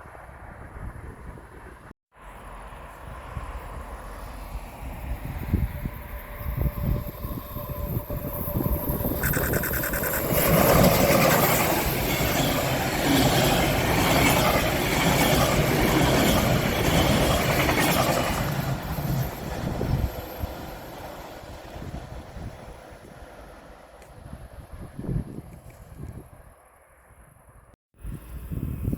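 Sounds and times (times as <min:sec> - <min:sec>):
train passing: 0:00.0 - 0:25.5.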